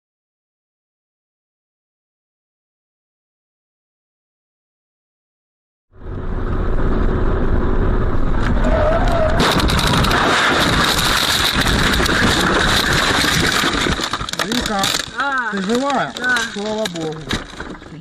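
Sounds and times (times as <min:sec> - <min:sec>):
car road and engine noise: 0:05.9 - 0:18.0.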